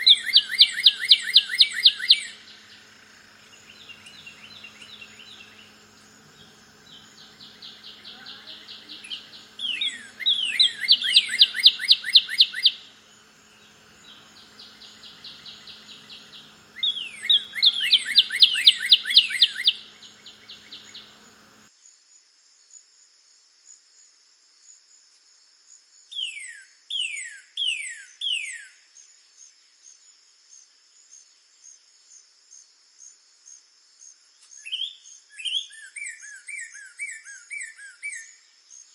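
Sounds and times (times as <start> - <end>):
bird whistling down-slurred notes: 0.0 - 2.4, 7.4 - 12.9, 14.9 - 21.1
faint high bird trills: 0.0 - 2.8, 3.4 - 21.6
high insect drone: 0.0 - 21.7.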